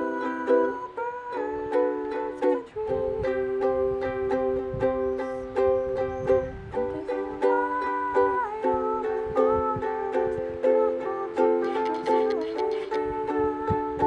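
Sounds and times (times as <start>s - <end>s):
strummed string instrument: 0.0s - 14.0s.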